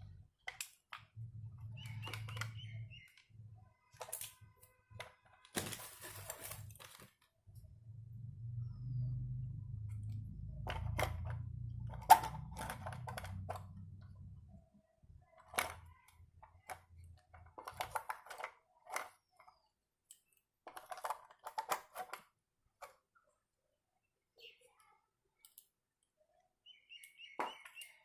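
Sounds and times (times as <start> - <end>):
low hum: 7.5 - 14.7
small hard parts clicking: 9.9 - 14.2, 15.3 - 23.0.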